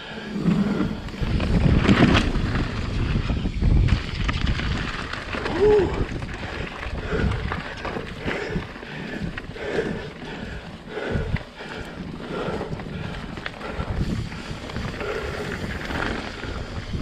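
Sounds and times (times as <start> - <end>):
wind buffeting microphone: 0.0 - 17.0
bike frame rattling and thumping: 0.4 - 8.6.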